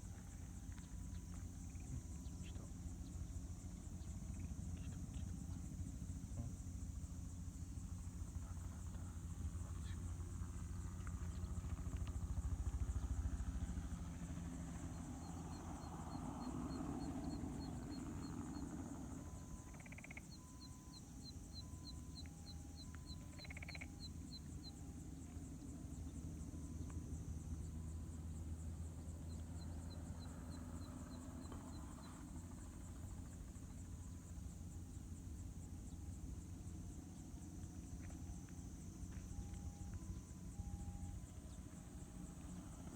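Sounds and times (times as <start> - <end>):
distant helicopter engine and rotor: 0.0 - 42.9
insects buzzing: 0.0 - 42.9.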